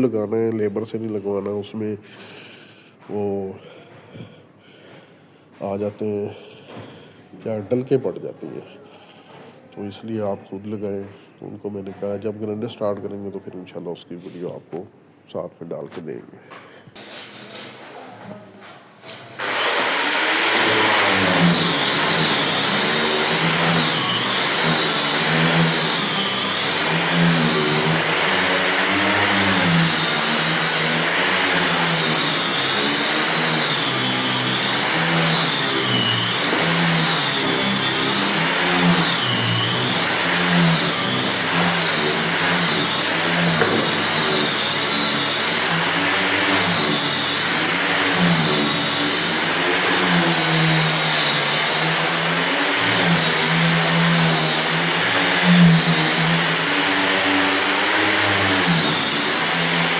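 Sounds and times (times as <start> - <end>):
angle grinder sanding wood: 19.0 - 59.9.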